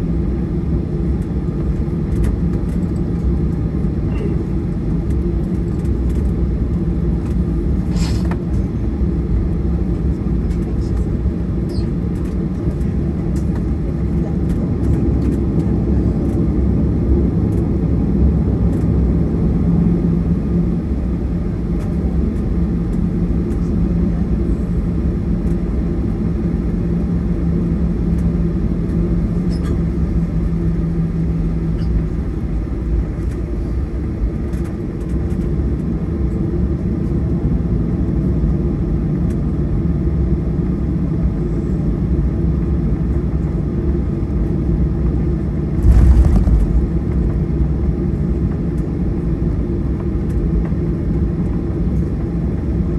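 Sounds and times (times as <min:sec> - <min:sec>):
jet engine rumble inside cabin: 0:00.0 - 0:52.9
steady hum: 0:45.8 - 0:47.4.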